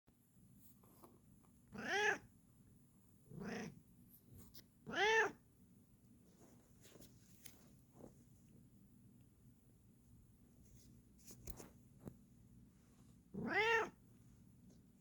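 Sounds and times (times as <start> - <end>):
cat meowing: 1.8 - 2.2, 4.9 - 5.4, 13.4 - 14.0.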